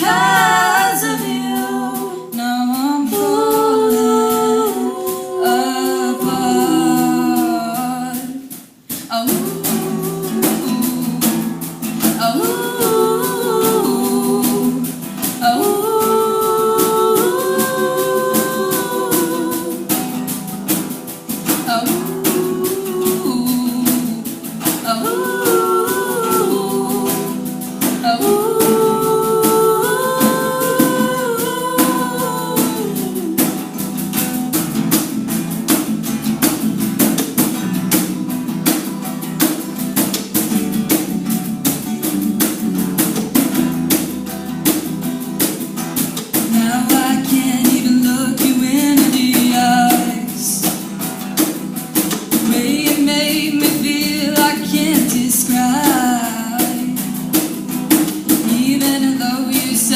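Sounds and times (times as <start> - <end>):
girls singing in harmony: 0.0 - 34.4
strummed guitar: 0.0 - 59.9.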